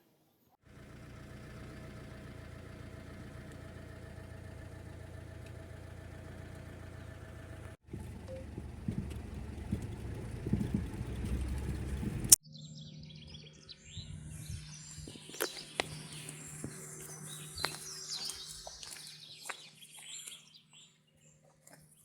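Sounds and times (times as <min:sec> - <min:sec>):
birds chirping and whistling: 0:12.5 - 0:21.4.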